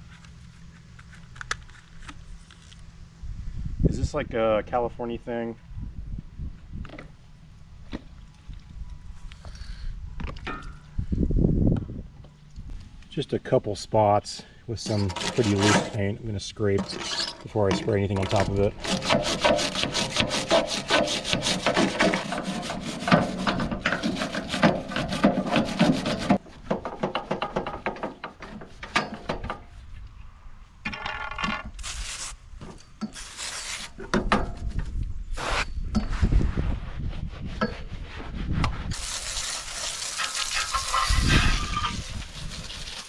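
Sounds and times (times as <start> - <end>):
hand scraper scraping paint off metal: 14.8 - 26.4, 33.1 - 34.1, 38.9 - 43.0.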